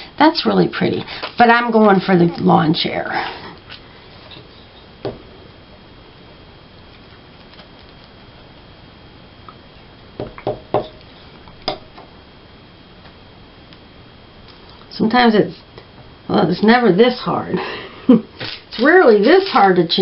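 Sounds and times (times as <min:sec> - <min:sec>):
magazine paper rustling: 0:18.4 - 0:20.0.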